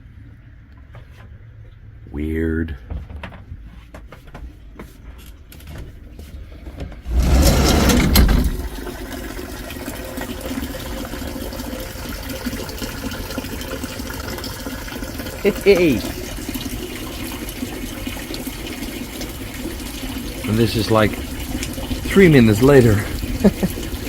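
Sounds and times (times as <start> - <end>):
heavy hail hissing: 19.4 - 24.0.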